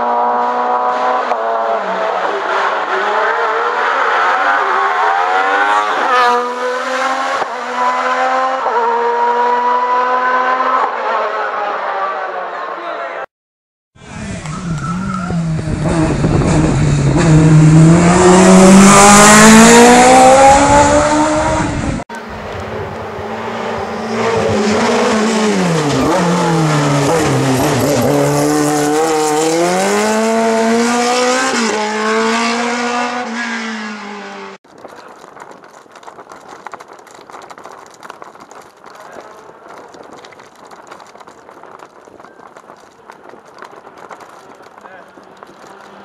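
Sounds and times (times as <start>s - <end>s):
racing car engine revving: 0.0s - 11.6s, 14.0s - 34.6s
crackly outdoor background noise: 34.6s - 46.0s.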